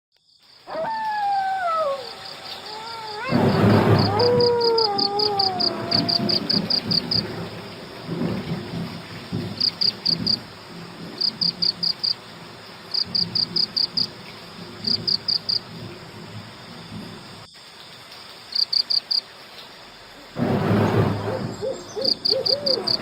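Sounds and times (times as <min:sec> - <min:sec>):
cricket chirping: 0:00.1 - 0:23.0
falling howl: 0:00.7 - 0:07.7, 0:20.4 - 0:23.0.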